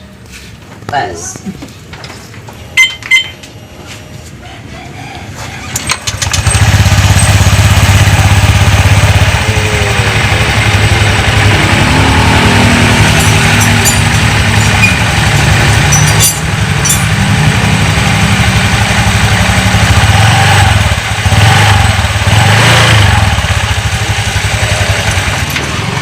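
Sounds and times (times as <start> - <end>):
scooter engine revving: 5.7 - 26.0.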